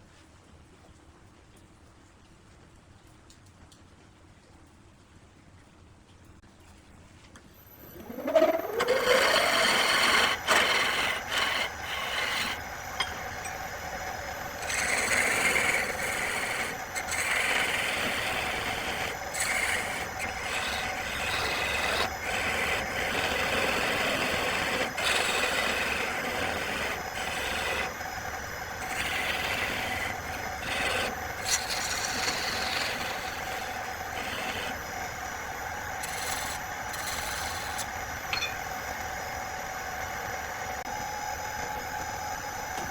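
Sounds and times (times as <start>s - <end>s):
wood lathe humming: 7.7s - 41.0s
tool hissing on spinning wood: 7.8s - 38.2s.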